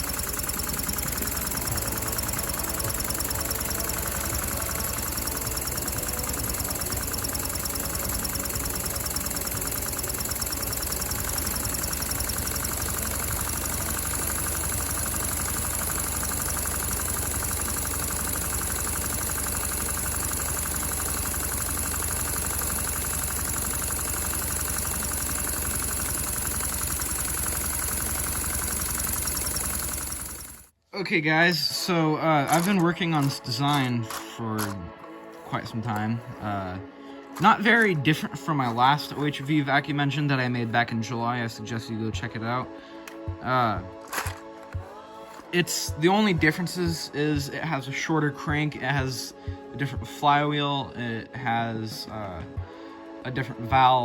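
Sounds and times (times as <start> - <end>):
plastic engine parts clattering: 32.4 - 34.8, 44.0 - 45.5.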